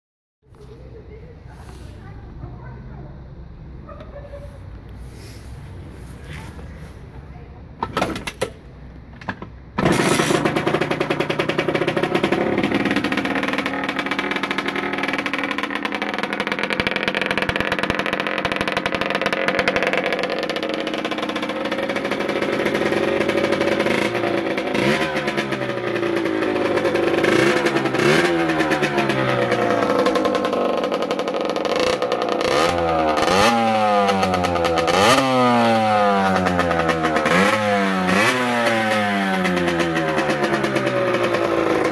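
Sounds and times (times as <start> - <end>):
two-stroke engine idling and revving: 9.3 - 41.9.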